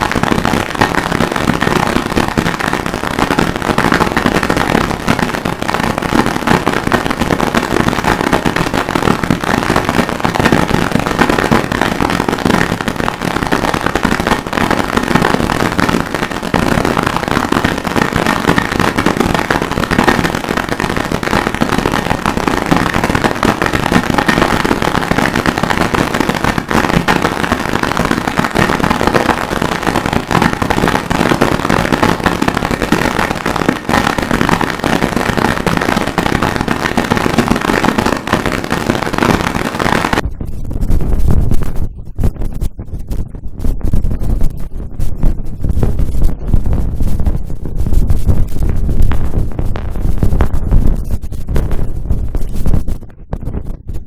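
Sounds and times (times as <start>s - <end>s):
harsh noise music crackling: 0.0s - 54.0s.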